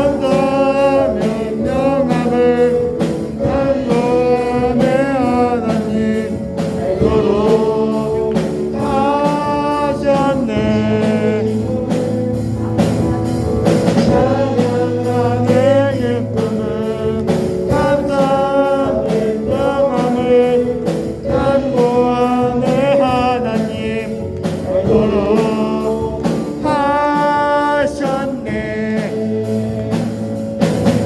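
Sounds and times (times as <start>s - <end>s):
instrumental accompaniment: 0.0s - 31.0s
person singing melody: 0.0s - 31.0s.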